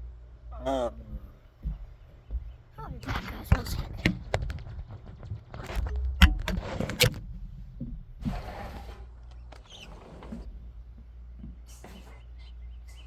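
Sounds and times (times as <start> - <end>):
steady low hum: 0.0 - 13.0
sharp knocks and clicks: 1.6 - 8.3.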